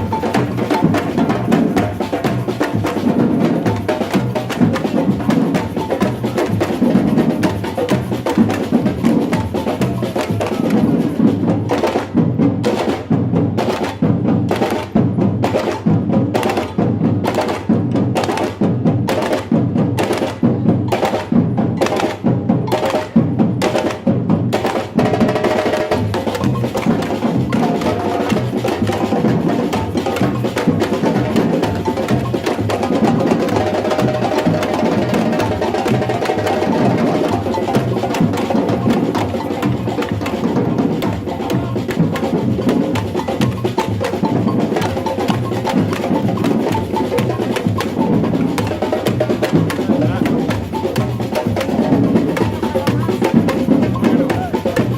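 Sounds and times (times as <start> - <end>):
samba percussion group drumming: 0.0 - 54.9.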